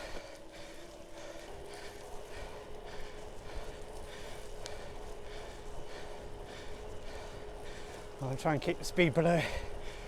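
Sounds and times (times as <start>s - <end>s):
person breathing hard: 0.0s - 8.2s, 9.4s - 10.0s.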